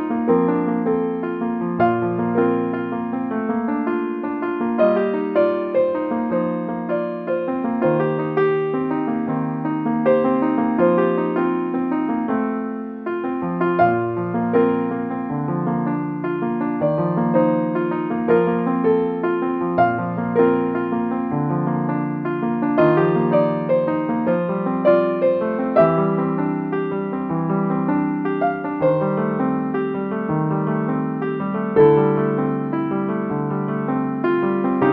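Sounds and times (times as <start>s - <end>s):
soft piano piece: 0.0s - 34.9s.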